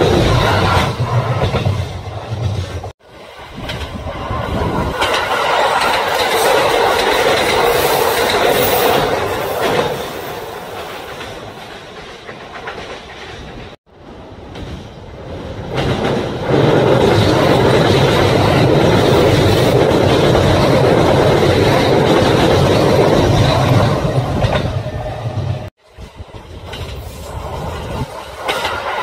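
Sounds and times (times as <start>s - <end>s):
train wheels clacking over joints: 4.9s - 13.8s, 26.2s - 29.0s.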